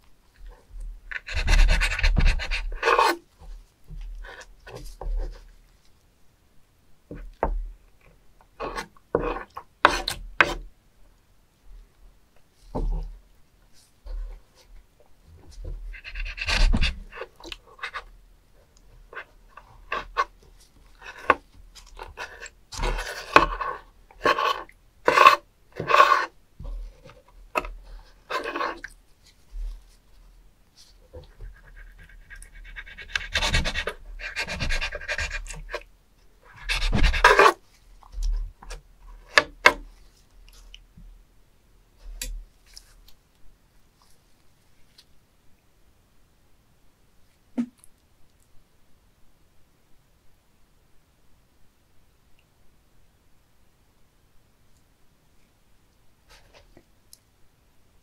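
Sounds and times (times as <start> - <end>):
knife scraping wooden board: 1.1 - 3.2, 8.6 - 10.6, 15.9 - 18.1, 19.2 - 20.3, 21.0 - 29.0, 31.4 - 35.8, 36.5 - 37.6.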